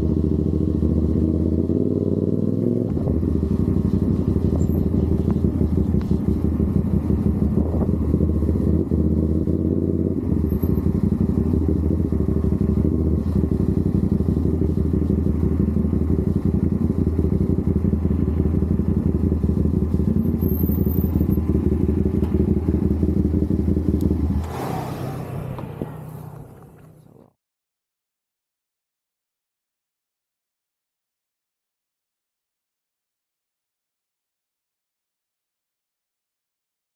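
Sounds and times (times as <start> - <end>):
motorcycle engine running: 0.0 - 27.3.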